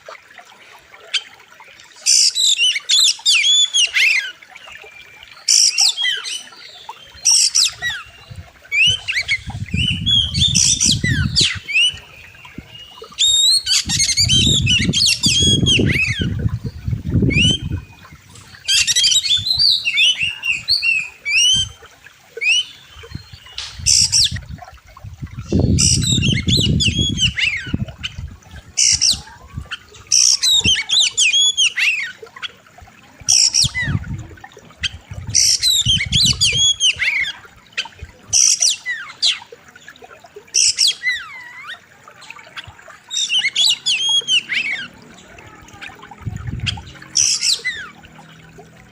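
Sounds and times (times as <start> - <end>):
bird singing whistles and chatter: 2.1 - 21.8, 25.4 - 28.2, 34.8 - 39.4, 43.2 - 46.0.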